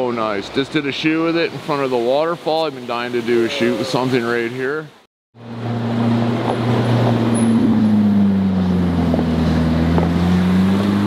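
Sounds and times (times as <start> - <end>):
car engine at low revs: 5.4 - 11.0.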